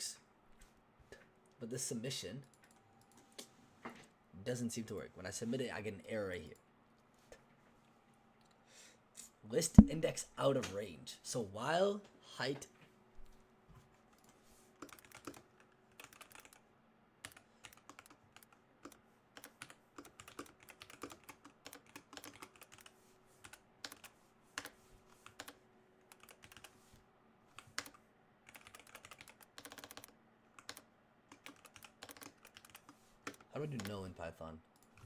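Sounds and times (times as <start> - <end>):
faint electrical hum: 0.0 - 35.0
computer keyboard typing: 14.8 - 16.6, 17.2 - 26.7, 27.6 - 34.0.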